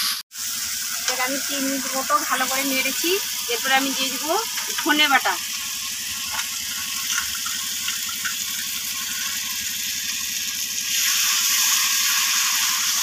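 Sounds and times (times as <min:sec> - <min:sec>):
paste sizzling in hot oil: 0:00.0 - 0:13.0
spatula stirring: 0:03.5 - 0:09.8.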